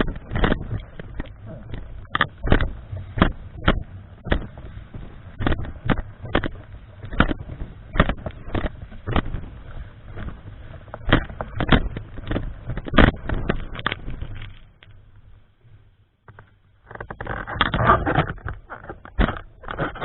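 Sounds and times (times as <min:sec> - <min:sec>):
strong wind buffeting microphone: 0:00.0 - 0:14.5.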